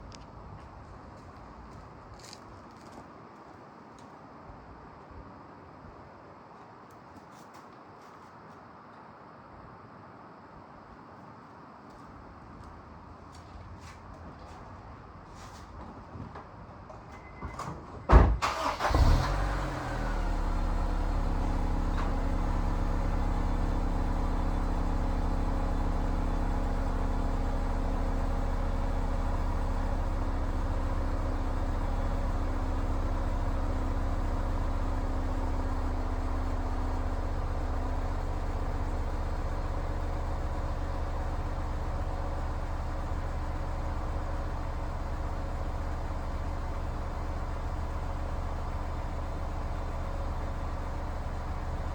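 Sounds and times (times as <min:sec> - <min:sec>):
car engine fast idle: 0:18.4 - 0:51.9.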